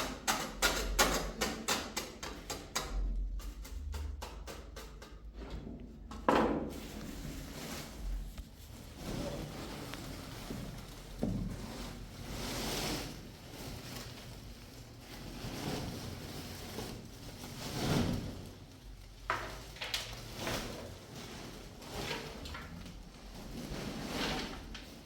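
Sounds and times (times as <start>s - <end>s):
sharp knocks and clicks: 0.2s - 6.6s
rustling handling noise: 6.7s - 25.0s.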